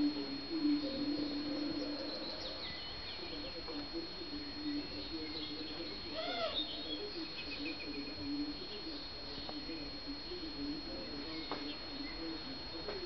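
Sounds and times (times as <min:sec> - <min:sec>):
faint high whine: 0:00.0 - 0:13.0
songbirds chirping: 0:00.0 - 0:13.0
wavering low hum: 0:00.0 - 0:13.0.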